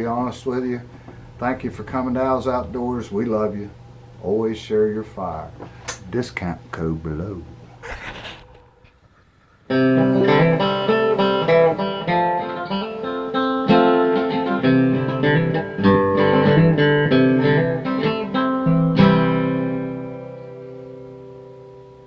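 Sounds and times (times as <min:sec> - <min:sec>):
solo guitar melody: 0:09.7 - 0:22.0.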